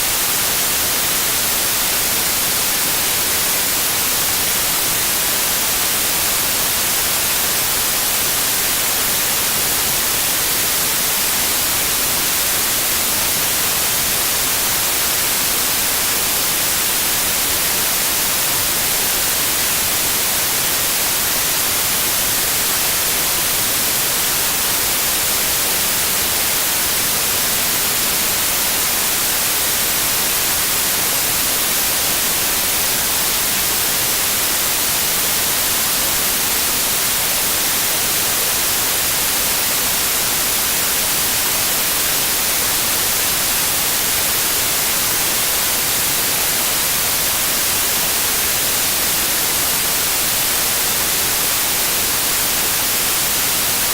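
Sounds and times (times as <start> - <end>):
white noise hiss: 0.0 - 53.9.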